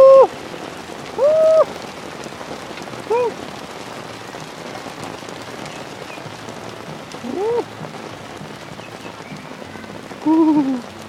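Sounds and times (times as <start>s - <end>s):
man calling woo: 0.0s - 0.3s, 1.2s - 1.7s, 3.1s - 3.4s, 7.2s - 7.7s, 10.2s - 10.9s
heavy rain falling: 0.0s - 11.0s.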